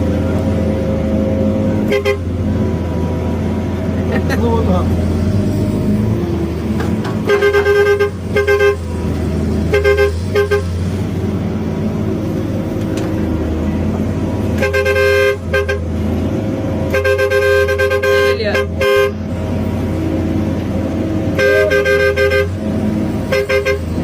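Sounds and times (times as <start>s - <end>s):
engine running: 0.0s - 24.0s
vehicle horn toots: 1.8s - 2.3s, 7.2s - 9.0s, 9.7s - 10.8s, 14.6s - 15.9s, 16.9s - 19.2s, 21.3s - 22.6s, 23.3s - 24.0s.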